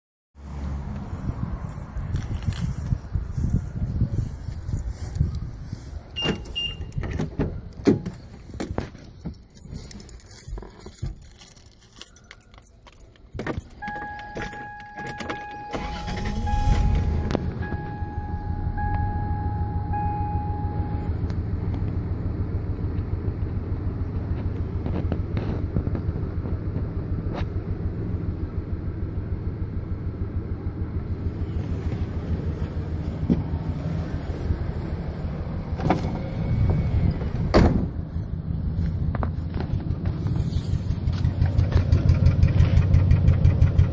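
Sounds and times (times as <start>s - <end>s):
clicks and handling noise: 0.9s - 3.7s, 4.4s - 15.6s
repeating warning chime: 13.8s - 21.2s
engine cranking and idling roughly: 15.7s - 17.6s, 38.1s - 43.9s.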